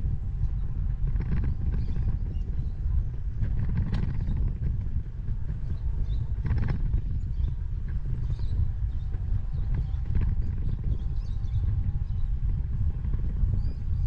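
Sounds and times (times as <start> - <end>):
wind rumble on microphone: 0.0 - 14.0
bike clicks and rattles: 0.4 - 2.4, 3.0 - 5.0, 6.0 - 9.1.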